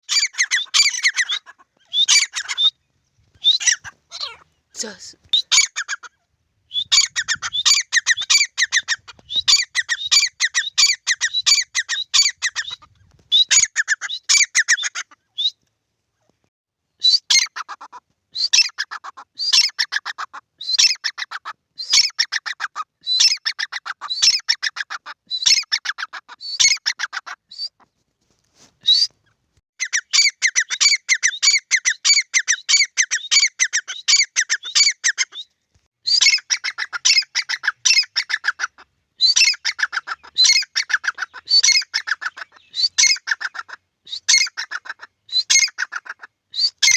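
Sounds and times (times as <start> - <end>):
francolins calling: 0.1 - 4.7, 5.3 - 15.5, 36.1 - 46.9.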